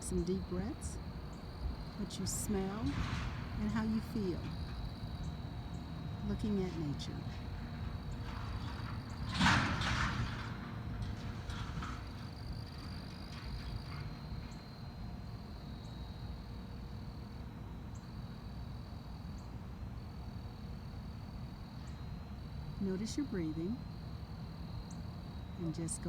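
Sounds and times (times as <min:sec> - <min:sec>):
high insect drone: 0:00.0 - 0:26.0
low background hum: 0:00.0 - 0:26.0
short noisy rustle: 0:06.7 - 0:14.6.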